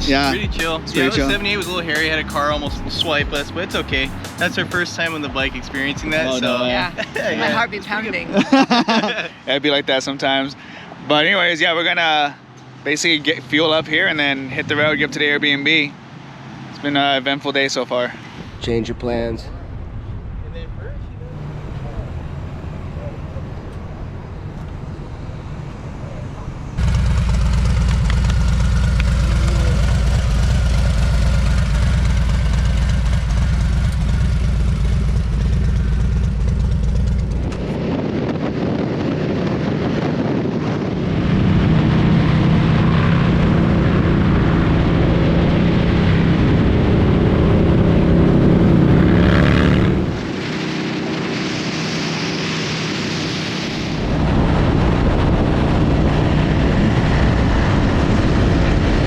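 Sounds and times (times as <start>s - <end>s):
motorcycles running at speed: 21.2s - 59.0s.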